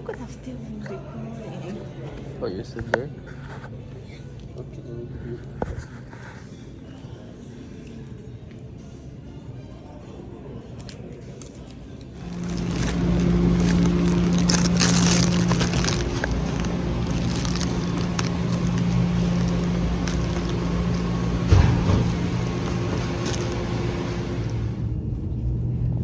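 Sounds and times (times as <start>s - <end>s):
vehicle hum: 12.2s - 25.1s.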